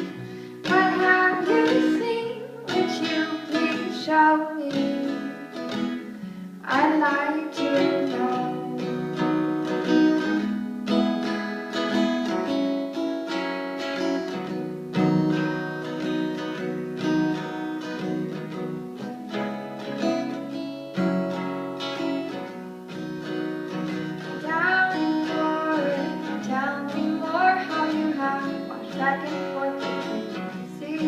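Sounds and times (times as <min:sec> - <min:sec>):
person singing: 0:00.0 - 0:09.4, 0:24.3 - 0:31.0
acoustic guitar playing: 0:00.0 - 0:31.0.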